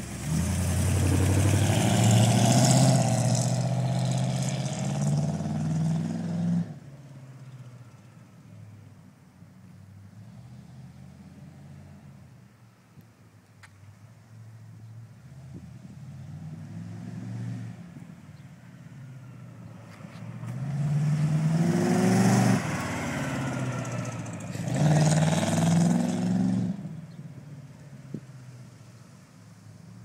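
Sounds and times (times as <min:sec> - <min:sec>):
car engine accelerating past: 0:00.0 - 0:06.8, 0:15.3 - 0:18.0, 0:19.6 - 0:27.0.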